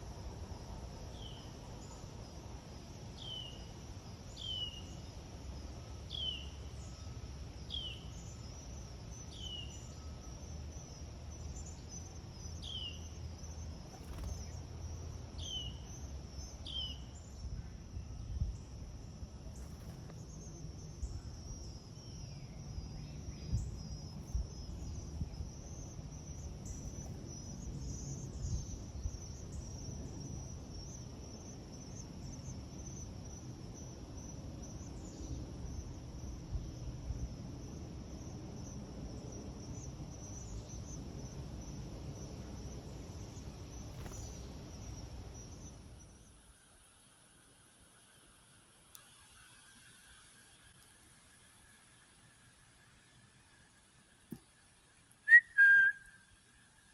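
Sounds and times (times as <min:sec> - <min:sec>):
high insect trill: 0:00.0 - 0:56.9
bird chirping: 0:55.3 - 0:56.3.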